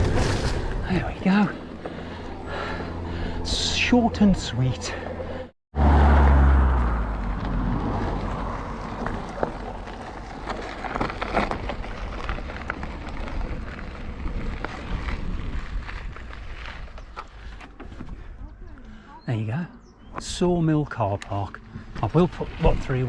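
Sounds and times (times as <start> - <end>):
bicycle tyres on trail: 0.0 - 19.4, 20.3 - 23.0
wind buffeting microphone: 11.8 - 18.8.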